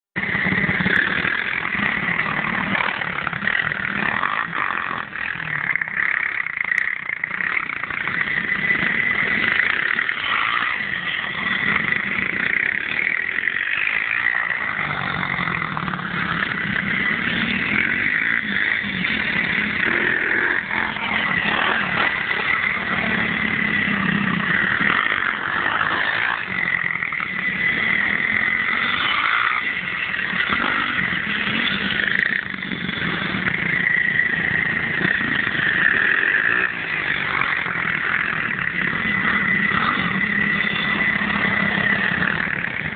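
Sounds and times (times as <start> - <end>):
pit bike engines running: 0.2 - 42.9.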